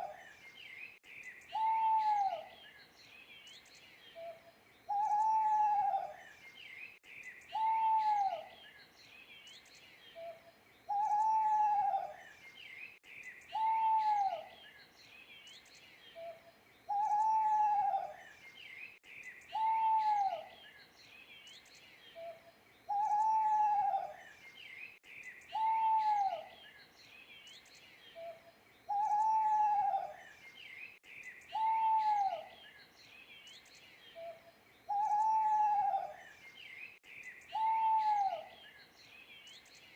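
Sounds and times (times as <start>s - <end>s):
small birds chirping: 0.0s - 39.9s
owl hooting: 1.5s - 2.5s, 4.2s - 6.2s, 7.5s - 8.5s, 10.2s - 12.2s, 13.5s - 14.5s, 16.2s - 18.2s, 19.5s - 20.5s, 22.2s - 24.2s, 25.5s - 26.5s, 28.2s - 30.2s, 31.5s - 32.6s, 34.2s - 36.2s, 37.5s - 38.6s.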